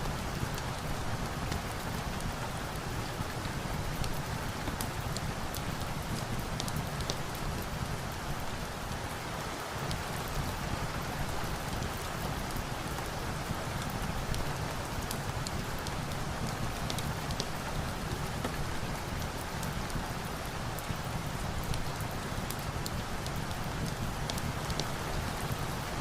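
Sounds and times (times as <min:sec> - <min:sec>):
steady rain: 0:00.0 - 0:26.0
log fire crackling: 0:15.0 - 0:25.9.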